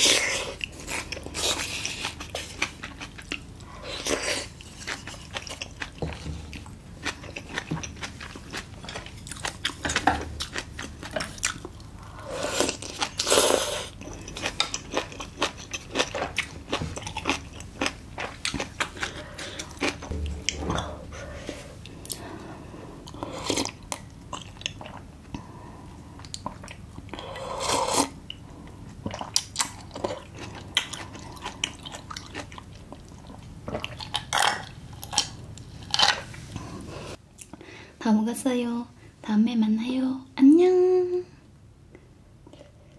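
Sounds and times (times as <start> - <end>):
chewing crunches and mouth clicks: 0.0 - 12.0, 12.6 - 20.2, 26.2 - 27.2, 28.2 - 36.3
noisy bursts: 20.1 - 22.6.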